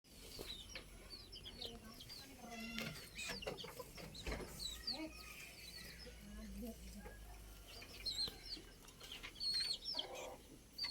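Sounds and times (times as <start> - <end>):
bird chirping: 0.1 - 10.9.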